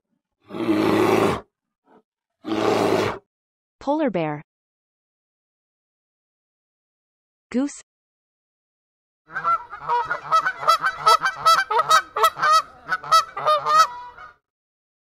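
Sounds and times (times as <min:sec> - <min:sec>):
geese honking: 0:09.3 - 0:14.4.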